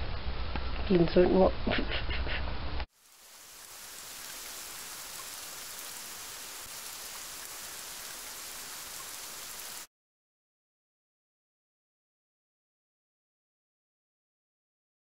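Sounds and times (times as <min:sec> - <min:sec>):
rain on paving stones: 0:02.9 - 0:09.9.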